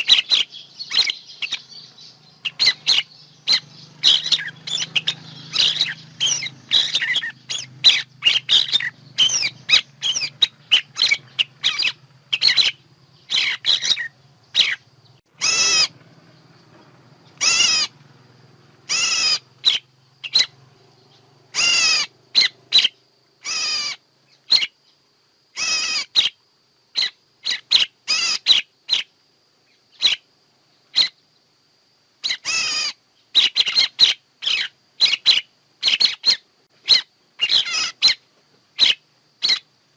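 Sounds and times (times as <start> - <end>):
harsh bird calls: 0.0 - 31.3, 32.2 - 39.8
sharp bird chirps: 0.0 - 31.5, 32.2 - 39.7.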